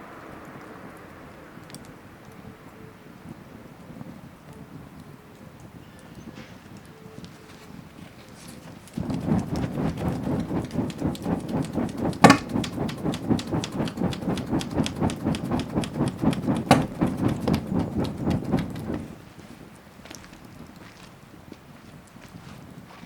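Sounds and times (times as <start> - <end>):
bonfire crackling: 8.4 - 20.5
loud fire pops: 9.0 - 19.2.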